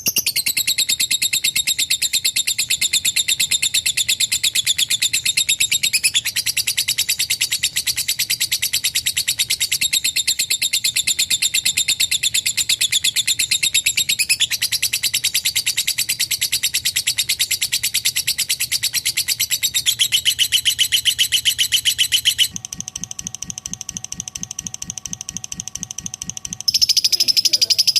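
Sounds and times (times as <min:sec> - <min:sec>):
lovebird chattering trill: 0:00.0 - 0:27.9
rhythmic pulsing with steady tones: 0:20.3 - 0:27.9.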